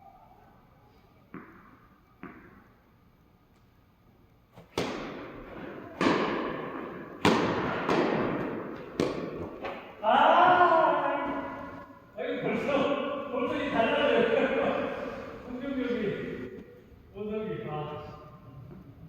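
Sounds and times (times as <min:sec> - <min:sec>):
tennis ball hits: 0:01.3 - 0:02.7, 0:04.6 - 0:11.8
tennis ball bouncing: 0:01.3 - 0:02.9, 0:04.6 - 0:10.0.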